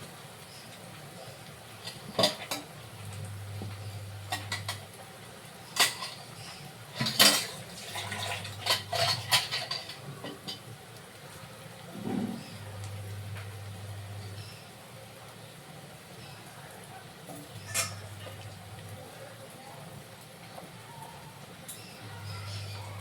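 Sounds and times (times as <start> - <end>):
metal utensils scraping a pot: 1.8 - 4.8, 5.6 - 10.7, 17.5 - 19.0.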